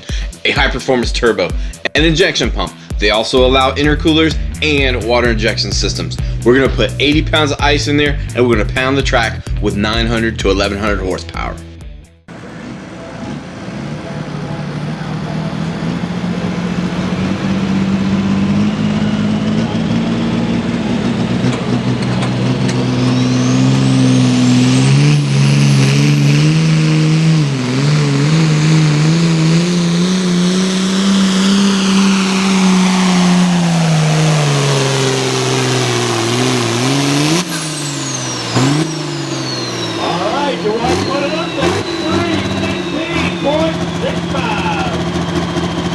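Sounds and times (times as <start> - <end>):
diesel tractor engine at full power: 0.0 - 45.9
high turbo whistle: 22.6 - 45.9.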